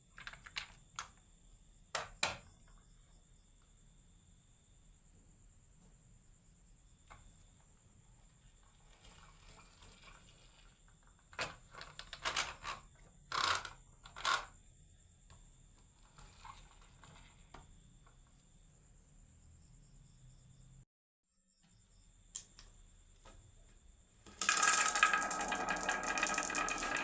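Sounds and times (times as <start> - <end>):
marbles clacking on wooden run: 24.3 - 27.0.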